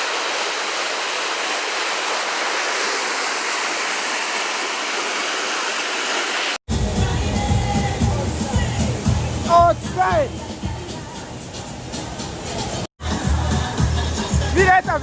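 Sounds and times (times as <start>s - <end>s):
river water rushing: 0.0s - 6.6s.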